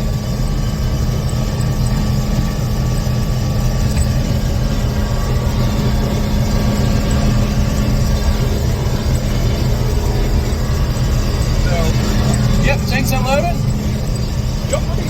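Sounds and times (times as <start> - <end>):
combine harvester engine droning: 0.0 - 15.0.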